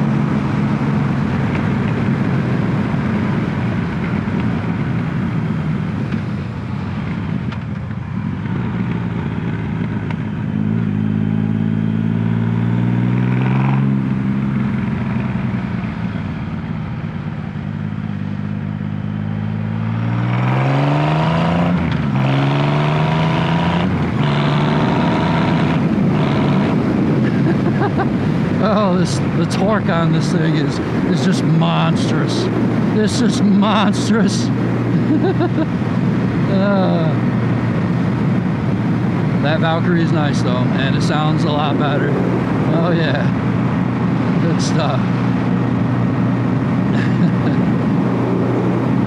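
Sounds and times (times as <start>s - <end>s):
motorcycle engine accelerating: 0.0s - 49.0s
wind rush: 23.8s - 39.4s, 40.1s - 49.0s.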